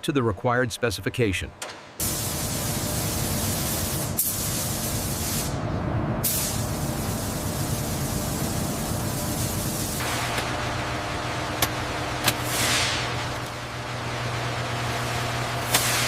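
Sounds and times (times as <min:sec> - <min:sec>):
low mechanical hum: 0:01.4 - 0:16.0
hissing spray: 0:02.0 - 0:05.6, 0:06.2 - 0:10.5, 0:12.3 - 0:13.5, 0:15.6 - 0:16.0
sharp high hiss: 0:06.2 - 0:10.3.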